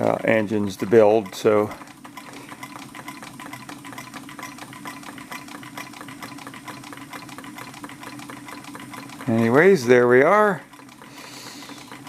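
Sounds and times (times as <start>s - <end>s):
rapid even clicking: 0.0s - 12.0s
hot air engine running: 11.0s - 12.0s.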